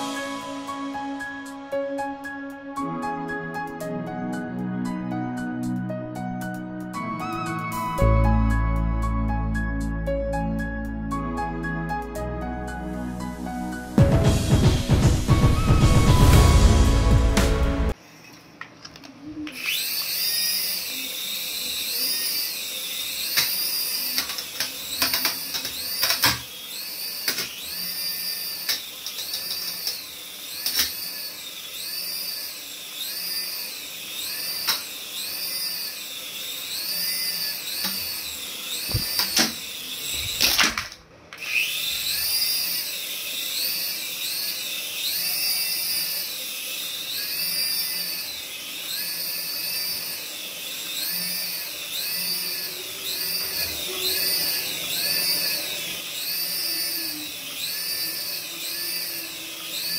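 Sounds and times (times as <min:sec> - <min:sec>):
remote-control toy whine: 0:17.9 - 0:59.9.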